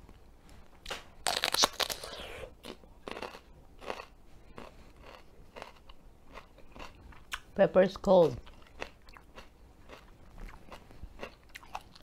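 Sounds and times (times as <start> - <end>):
crunchy bite into pepper: 0.8 - 4.1
crunchy chewing: 0.8 - 7.5, 8.4 - 12.0.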